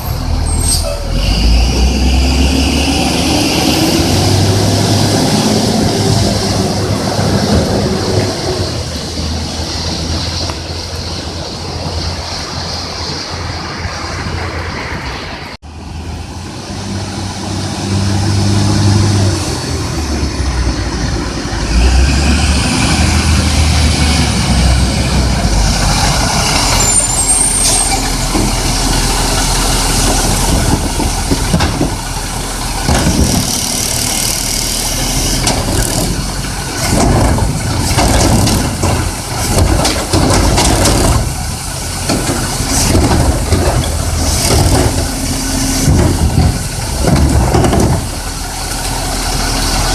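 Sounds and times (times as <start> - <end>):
garbage truck engine running: 16.7 - 49.9
knocks and clatter: 28.0 - 49.1.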